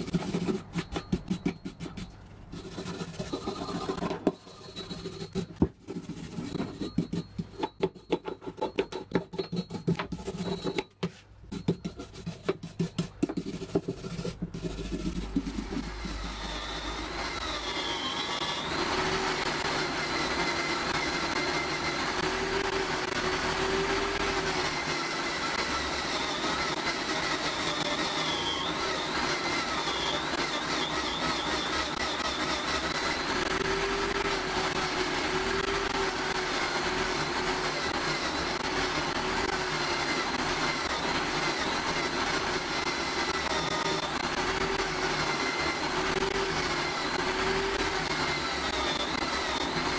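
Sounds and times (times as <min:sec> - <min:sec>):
electric drill spinning wire brush: 0:00.0 - 0:10.9, 0:11.5 - 0:49.9
hand scraping on steel wrench: 0:00.0 - 0:16.7.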